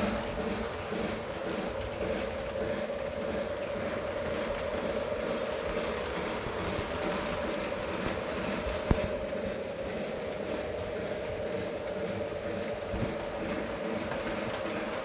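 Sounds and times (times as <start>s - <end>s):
motor whine: 0.0s - 15.0s
train wheels rumbling on rails: 0.0s - 15.0s.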